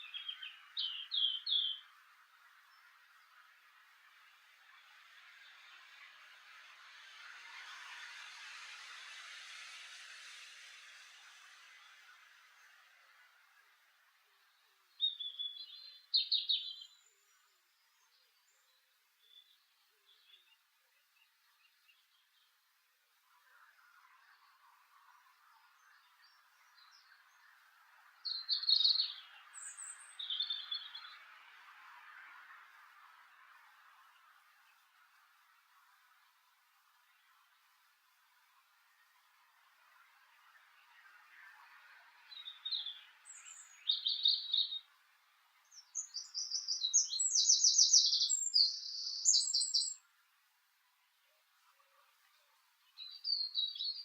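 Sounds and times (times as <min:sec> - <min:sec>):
songbird singing trills: 0:00.0 - 0:03.5, 0:14.4 - 0:22.6, 0:23.3 - 0:31.6, 0:38.9 - 0:50.1, 0:51.7 - 0:54.0
small birds chirping: 0:00.0 - 0:08.0, 0:10.0 - 0:54.0
faint steady hiss: 0:00.0 - 0:54.0.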